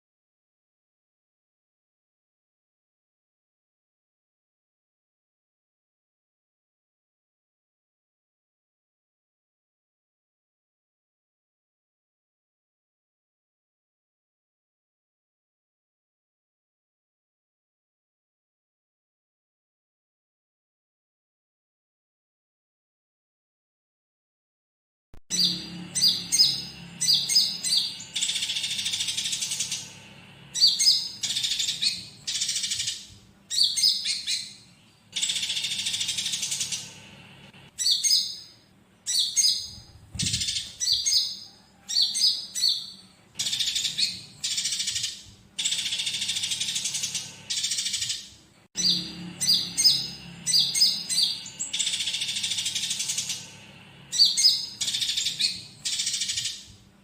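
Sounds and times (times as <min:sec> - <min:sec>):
sparrows rasping chatter: 0:25.3 - 0:56.7.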